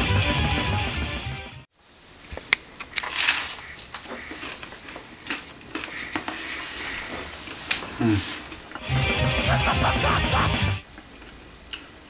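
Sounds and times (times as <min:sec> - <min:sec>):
chewing with crisp crunches: 0:02.8 - 0:06.3.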